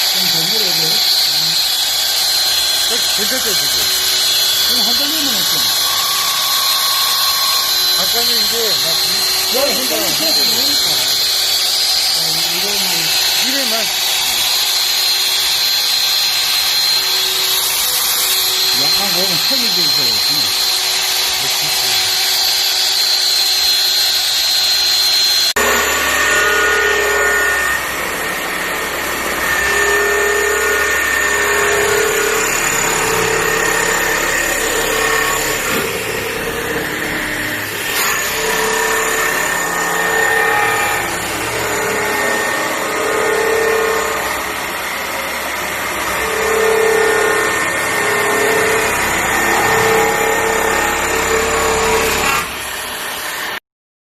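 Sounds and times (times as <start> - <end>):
pulsing grinding tone: 0.0 - 52.2
steady machine whine: 0.0 - 53.3
grinding machine on metal: 0.0 - 53.6.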